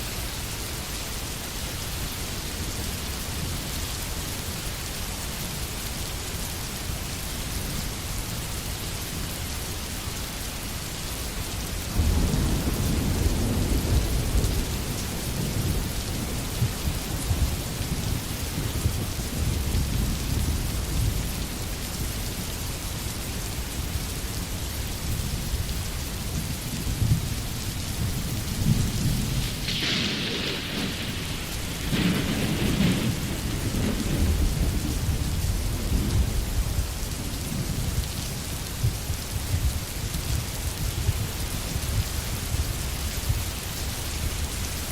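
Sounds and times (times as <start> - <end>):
steady rain falling: 0.0 - 44.9
low rolling thunder: 11.9 - 22.4, 25.1 - 43.5.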